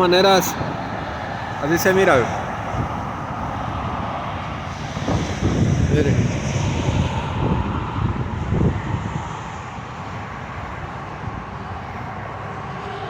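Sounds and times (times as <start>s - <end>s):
freeway traffic: 0.0s - 13.0s
wind buffeting microphone: 0.0s - 13.0s.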